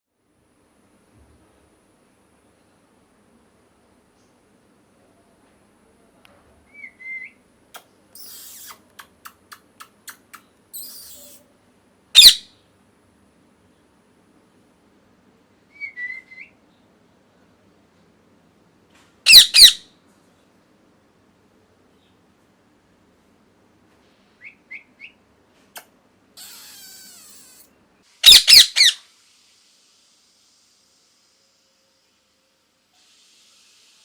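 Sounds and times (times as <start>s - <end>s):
small animal chirps: 7.8s - 11.5s, 12.2s - 12.5s, 19.3s - 19.8s, 25.8s - 29.0s
shrill animal squawks: 10.8s - 11.4s, 12.2s - 12.5s, 19.3s - 19.8s, 26.4s - 29.0s.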